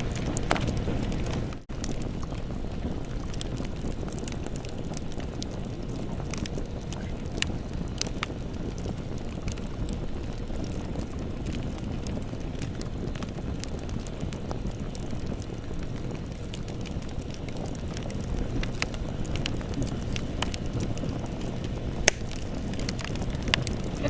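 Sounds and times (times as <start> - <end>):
campfire flames rumbling: 0.0 - 24.0
wood crackling and popping: 0.0 - 24.0.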